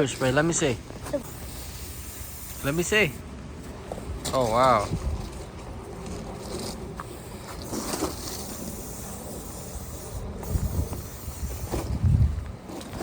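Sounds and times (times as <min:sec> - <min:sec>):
aerosol spray hissing: 0:01.2 - 0:03.2, 0:08.3 - 0:11.9
wind rumble on microphone: 0:03.9 - 0:13.0.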